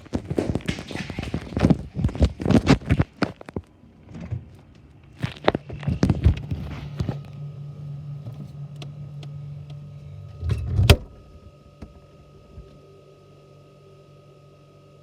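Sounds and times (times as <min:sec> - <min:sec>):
low steady hum: 0:00.0 - 0:15.0
refrigerator door thudding shut: 0:10.4 - 0:11.2.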